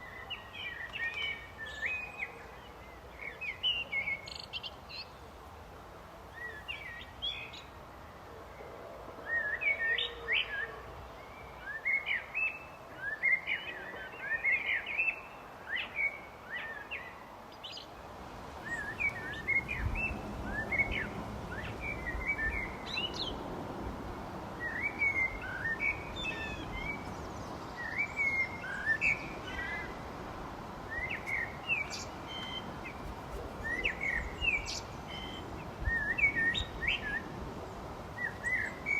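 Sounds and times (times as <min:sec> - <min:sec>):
birds chirping and singing: 0:30.9 - 0:37.3.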